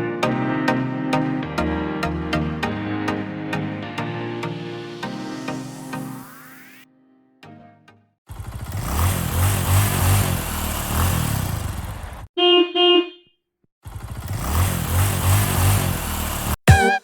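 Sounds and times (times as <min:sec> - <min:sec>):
horn honks: 0:12.4 - 0:13.3, 0:16.6 - 0:17.0.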